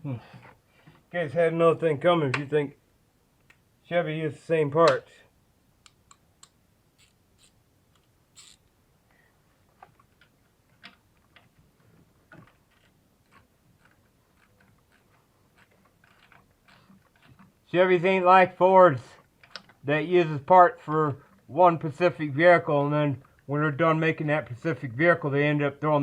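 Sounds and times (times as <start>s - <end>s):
faint irregular clicks and taps: 5.8s - 6.6s, 9.1s - 17.6s, 19.2s - 19.8s.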